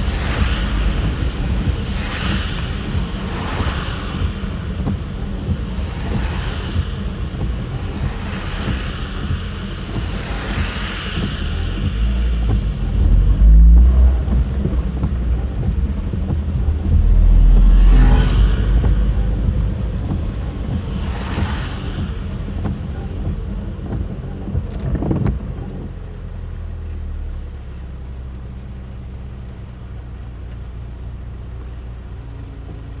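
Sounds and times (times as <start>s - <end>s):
whooshes: 0.0s - 25.4s
road and engine rumble: 0.0s - 33.0s.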